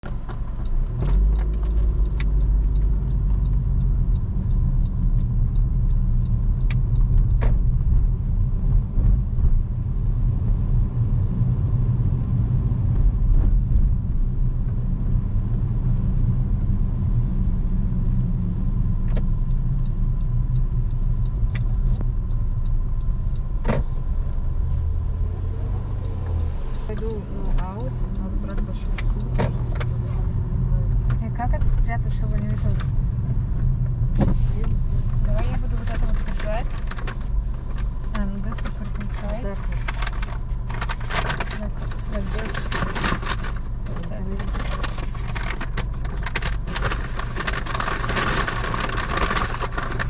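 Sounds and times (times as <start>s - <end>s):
road and engine rumble: 0.0s - 50.0s.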